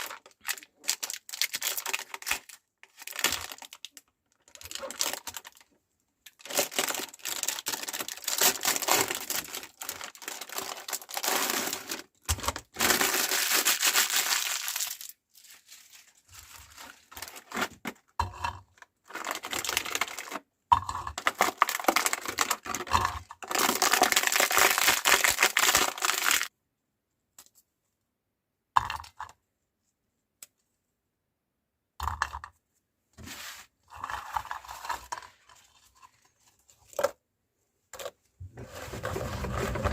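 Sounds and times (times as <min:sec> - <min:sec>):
cookies crunching in a grinder: 0:17.2 - 0:26.5.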